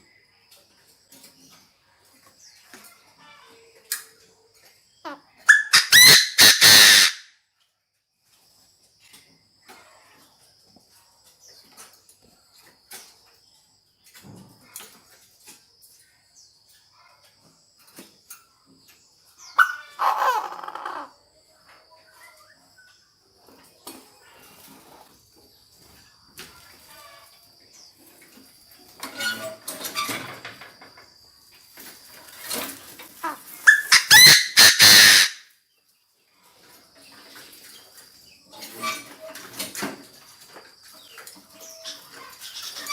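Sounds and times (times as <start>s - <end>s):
bird harsh crowing calls: 5.0s - 7.3s, 19.4s - 21.2s, 33.2s - 35.5s.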